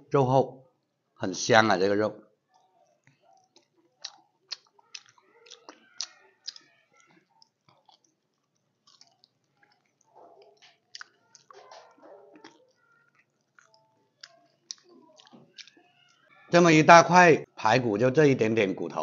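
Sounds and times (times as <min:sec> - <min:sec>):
wet mouth smacks and clicks: 0:03.4 - 0:06.7, 0:07.4 - 0:10.0, 0:10.6 - 0:11.6
man chewing: 0:03.4 - 0:15.8.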